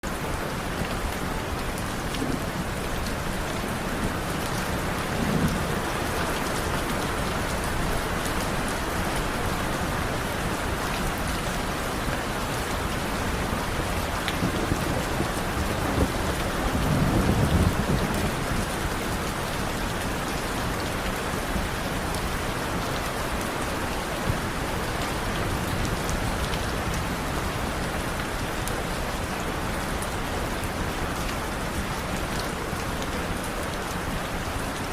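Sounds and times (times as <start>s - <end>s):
steady rain falling: 0.0s - 34.9s
low thunder rumbling: 14.4s - 18.7s.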